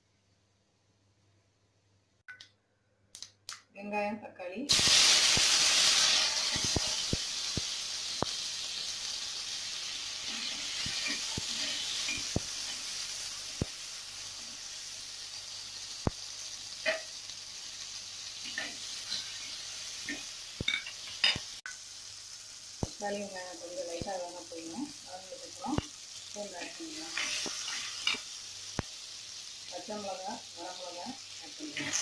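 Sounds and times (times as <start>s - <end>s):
vegetables sizzling in hot oil: 4.7s - 32.0s.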